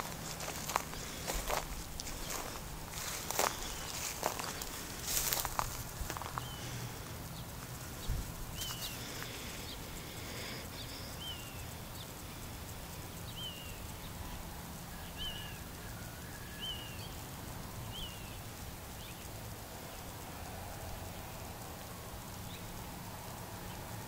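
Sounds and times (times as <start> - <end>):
steady low rumble: 0.0 - 15.9.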